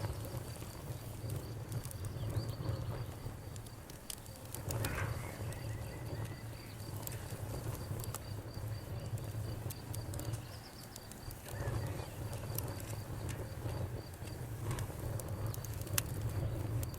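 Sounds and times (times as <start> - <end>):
wood fire crackling: 0.0 - 16.9
cricket chirping: 1.4 - 13.9.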